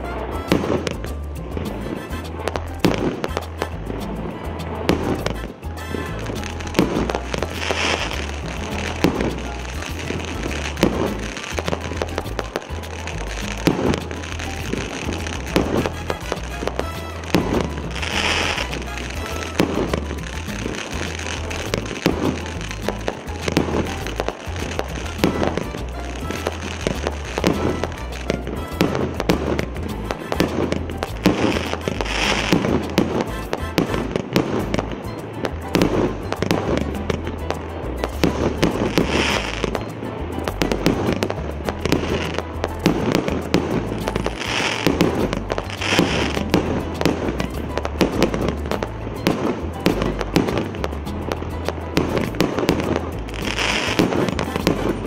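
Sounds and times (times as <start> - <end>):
fireworks launches and bursts: 0.0 - 55.0.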